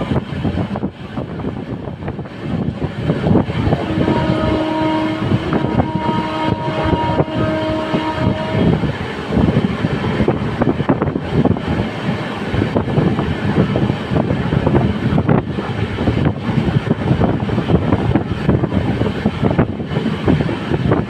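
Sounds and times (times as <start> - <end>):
wind buffeting microphone: 0.0 - 21.0
train wheels clattering on track: 5.2 - 21.0.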